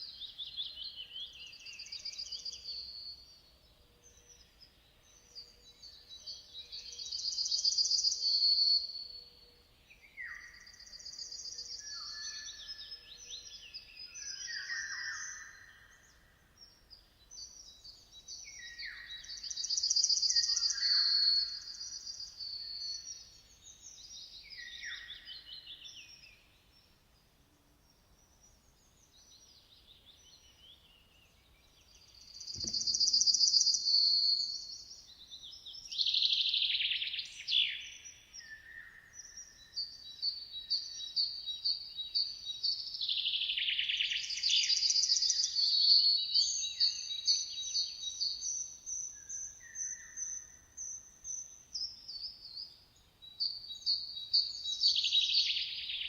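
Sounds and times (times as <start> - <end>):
songbirds trilling and chirping: 0.0 - 56.0.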